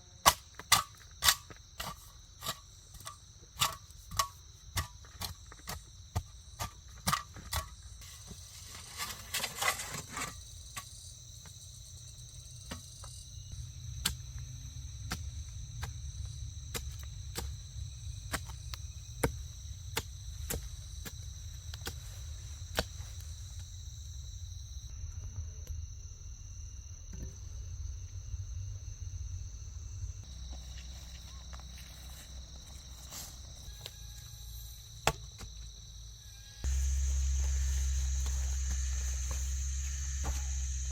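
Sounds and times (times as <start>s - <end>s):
insect chorus drone: 0.0s - 40.9s
rustling scrape: 8.0s - 10.4s.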